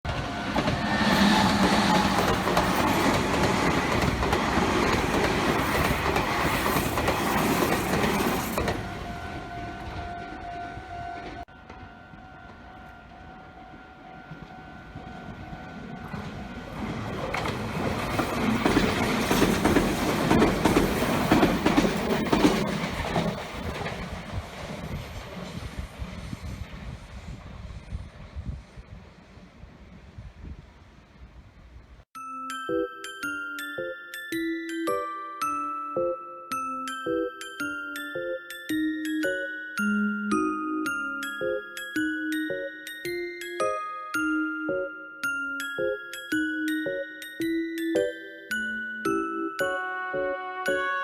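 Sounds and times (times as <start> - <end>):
train running on track: 0.0 - 31.8
wheels clacking over rail joints: 0.1 - 9.5, 14.4 - 25.6.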